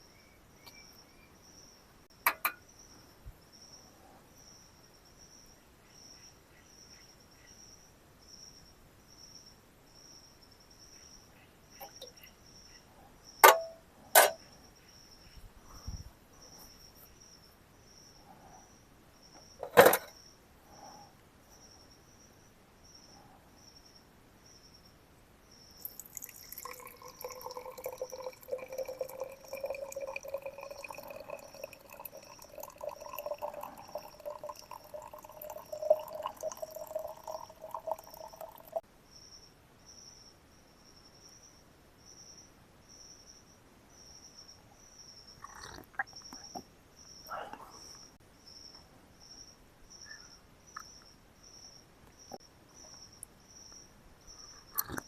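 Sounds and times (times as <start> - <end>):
high insect chirp: 0.0 - 55.0
liquid pouring into bottle: 25.8 - 38.8.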